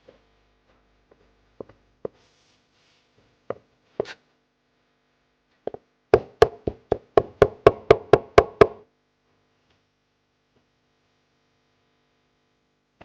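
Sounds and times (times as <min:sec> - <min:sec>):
knife chopping on cutting board: 0:03.5 - 0:04.2, 0:05.7 - 0:08.8.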